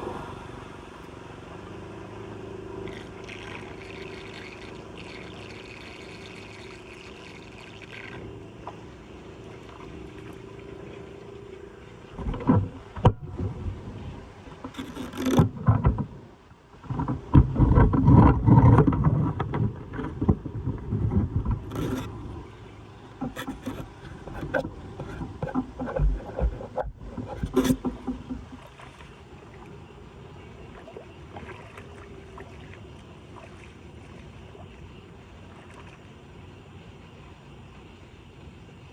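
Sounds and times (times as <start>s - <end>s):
floodwater rushing at a drain: 0.0s - 12.3s
debris scraping and knocking: 17.7s - 22.1s, 23.2s - 28.4s.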